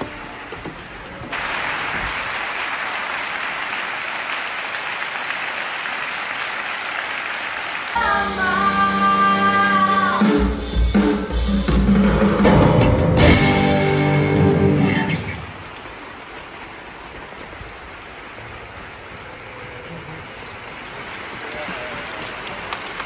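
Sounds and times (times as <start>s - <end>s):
audience applauding: 1.3s - 8.4s, 18.0s - 23.0s
drums: 8.0s - 15.5s
live band music: 8.0s - 15.5s.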